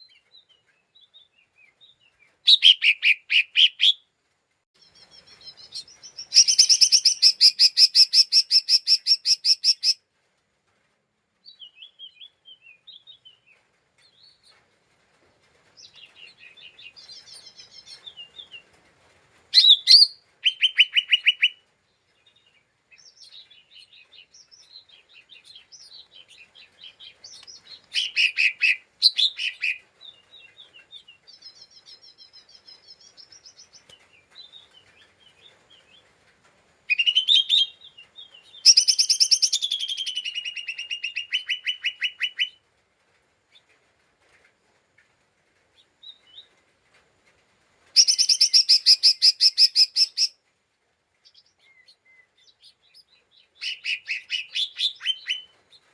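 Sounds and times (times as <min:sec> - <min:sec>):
soft bird twitters: 0:00.0 - 0:04.0, 0:04.8 - 0:10.0, 0:19.5 - 0:21.6, 0:22.2 - 0:36.1, 0:36.9 - 0:42.6, 0:51.2 - 0:55.9.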